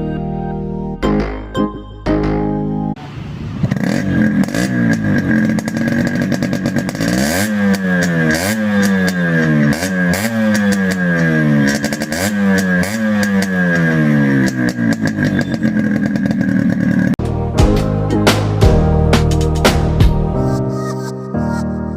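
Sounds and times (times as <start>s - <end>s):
motorcycle engine revving: 3.0s - 17.2s.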